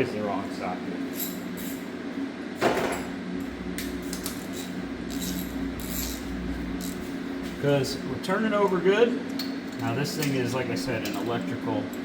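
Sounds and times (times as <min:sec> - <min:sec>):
low hum: 0:02.9 - 0:08.3
metal tools clinking: 0:04.2 - 0:07.0.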